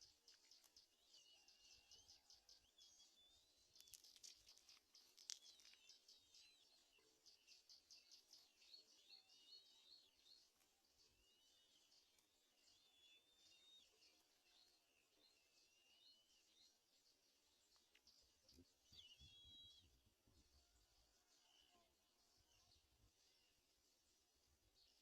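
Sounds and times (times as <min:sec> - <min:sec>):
high-pitched bird chirping: 0:18.9 - 0:19.9.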